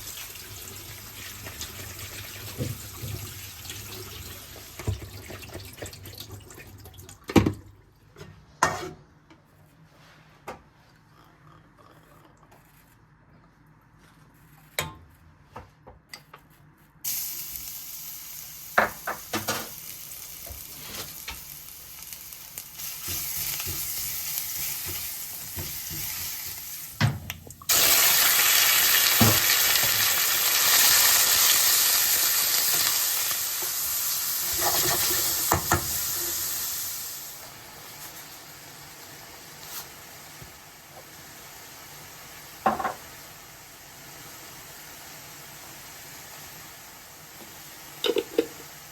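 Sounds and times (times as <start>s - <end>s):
food sizzling in a pan: 0.0s - 5.1s, 17.1s - 27.0s, 27.7s - 48.9s.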